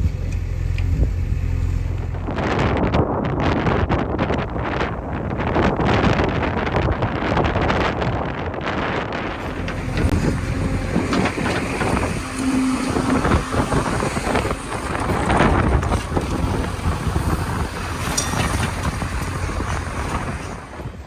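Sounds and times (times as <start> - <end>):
backhoe diesel engine under load: 0.0 - 3.7, 9.1 - 21.0
wind buffeting microphone: 0.0 - 21.0.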